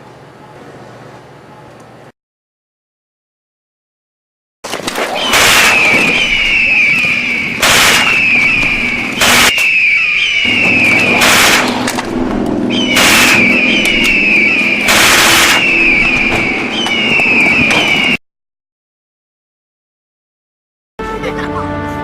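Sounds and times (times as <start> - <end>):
loud blasts: 5.0 - 18.2
birds screeching: 5.1 - 11.8, 12.7 - 18.2
low rumble: 10.5 - 17.6.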